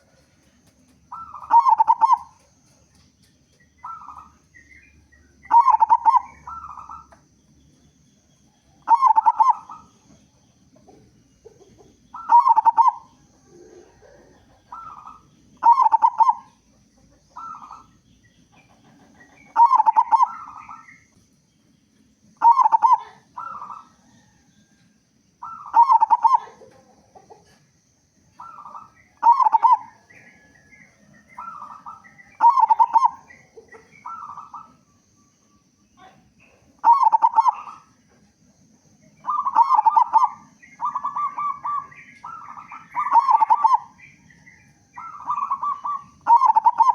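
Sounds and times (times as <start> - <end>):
dove singing staccato coos: 0.0 - 46.9.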